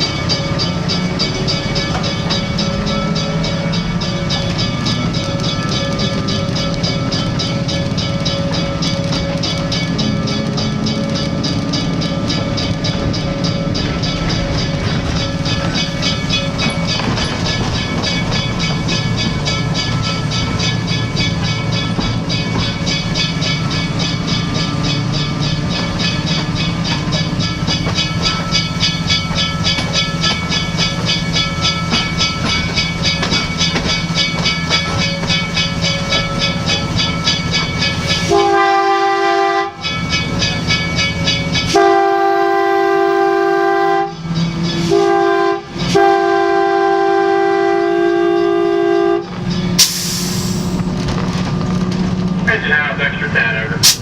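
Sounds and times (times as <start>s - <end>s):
train rolling: 0.0s - 54.0s
train whistle: 38.2s - 39.9s, 41.7s - 44.2s, 44.9s - 50.7s.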